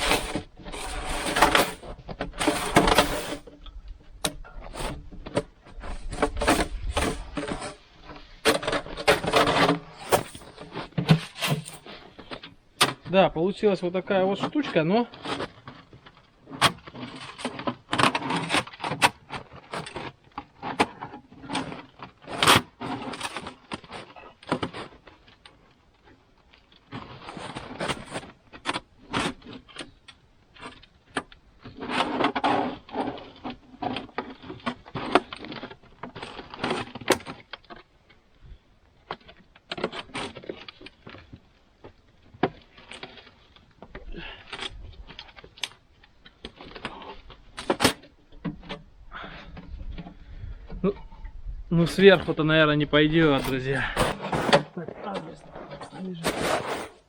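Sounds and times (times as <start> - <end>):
tin sheet rattling and crinkling: 4.6 - 38.2, 51.8 - 57.0.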